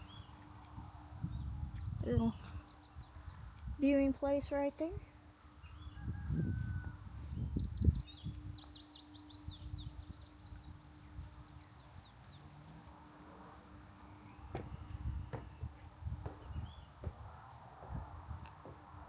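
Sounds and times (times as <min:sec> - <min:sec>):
songbird singing: 0:00.0 - 0:19.0
dull low thumps: 0:14.5 - 0:17.3.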